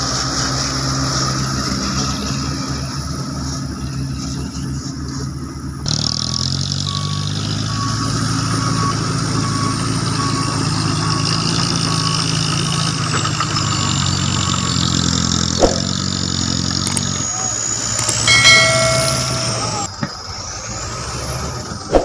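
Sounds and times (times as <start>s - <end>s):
dump truck diesel engine running: 0.0s - 21.9s
short beeps: 18.0s - 19.9s.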